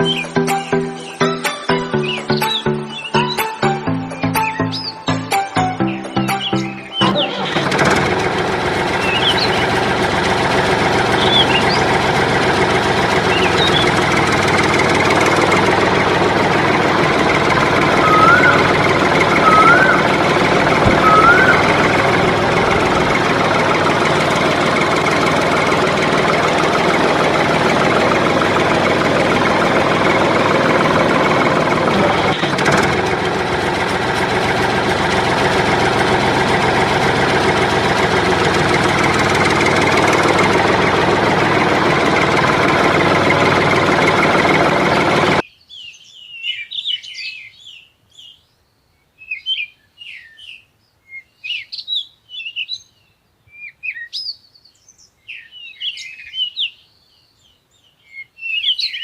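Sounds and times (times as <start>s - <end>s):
tractor engine idling: 0.0s - 45.4s.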